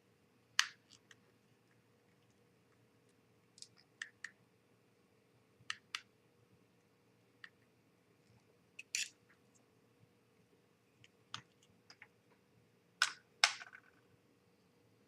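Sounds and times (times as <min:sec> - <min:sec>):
small parts clicking on surface: 0:08.8 - 0:09.2.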